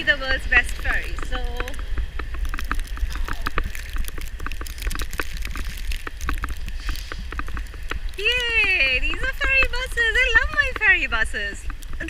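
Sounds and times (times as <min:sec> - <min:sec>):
wind buffeting microphone: 0:00.0 - 0:12.0
sharp clicks and crunches: 0:00.5 - 0:12.0.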